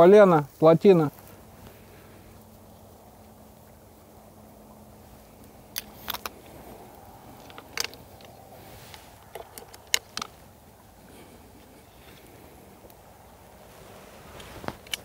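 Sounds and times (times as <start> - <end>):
crossbow mechanism clicking: 7.0 - 10.3, 14.4 - 15.0.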